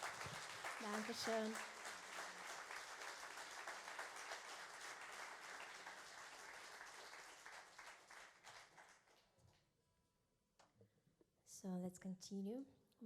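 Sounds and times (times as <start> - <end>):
faint audience applause: 0.0 - 9.4.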